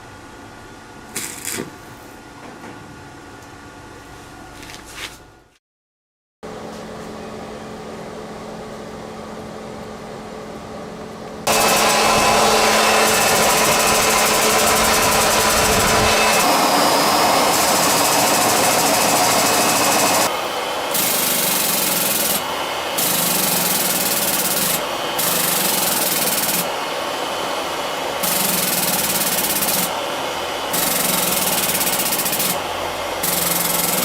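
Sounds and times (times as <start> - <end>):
hydraulic press machine running: 11.5 - 34.0.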